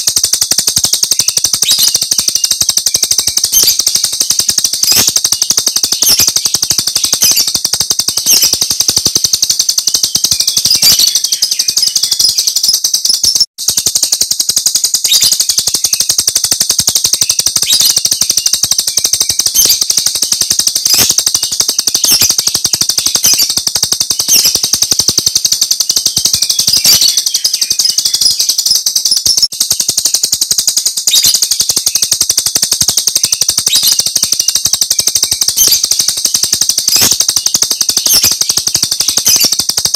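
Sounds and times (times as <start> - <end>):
starling rapid chatter: 0.0 - 39.9.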